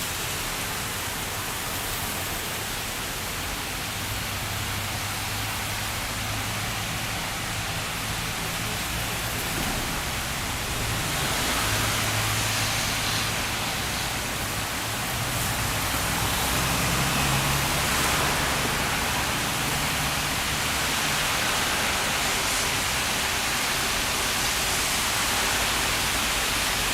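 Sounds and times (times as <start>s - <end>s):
rain falling: 0.0s - 26.9s.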